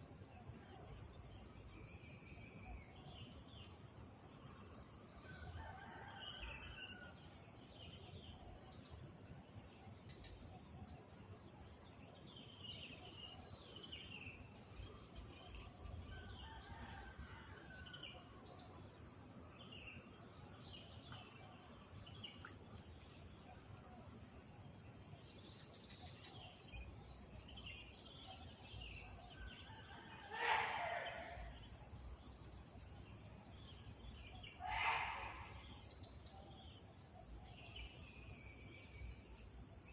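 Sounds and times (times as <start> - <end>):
high insect drone: 21.6 - 39.9
loud brief bird call: 30.3 - 31.5, 34.6 - 35.7.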